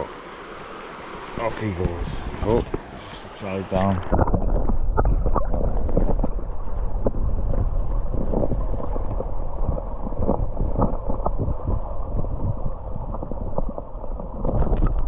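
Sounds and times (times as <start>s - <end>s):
river water rushing: 0.0s - 4.8s
water splashes: 0.0s - 15.0s
wind buffeting microphone: 1.3s - 15.0s.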